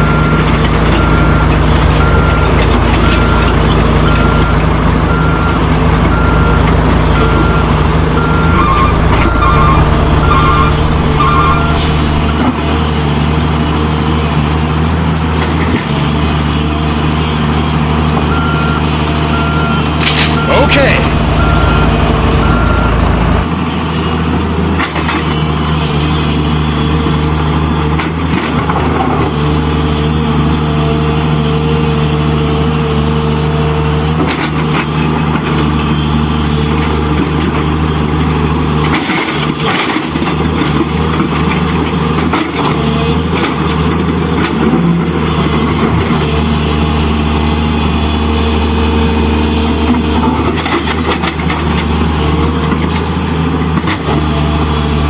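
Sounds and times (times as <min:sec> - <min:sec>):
heavy vehicle engine humming: 0:00.0 - 0:55.0.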